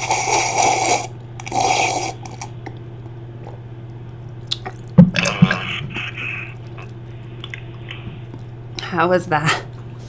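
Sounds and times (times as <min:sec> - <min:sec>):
man slurping on finger: 0:04.5 - 0:08.5.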